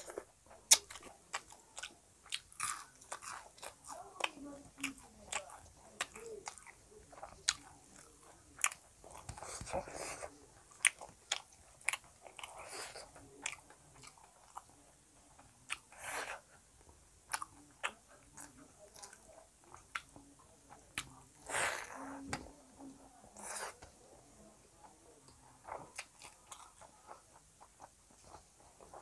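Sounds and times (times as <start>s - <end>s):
wet smacking chewing: 0.0s - 16.5s, 17.3s - 22.6s, 24.8s - 29.0s
crunchy chewing: 0.0s - 22.6s, 23.2s - 29.0s.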